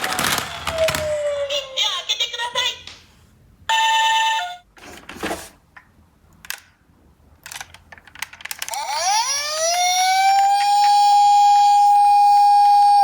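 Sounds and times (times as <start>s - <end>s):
plastic toy cars clicking: 7.4s - 8.8s
toy electronic siren: 8.7s - 13.0s.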